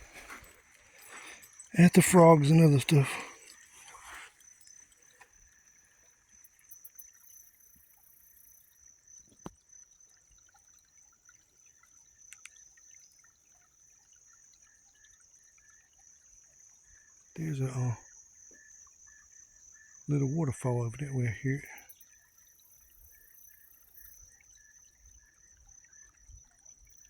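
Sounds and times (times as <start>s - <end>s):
high-pitched insect trill: 0.0s - 10.0s, 21.5s - 27.0s
creek water trickling: 0.0s - 27.0s.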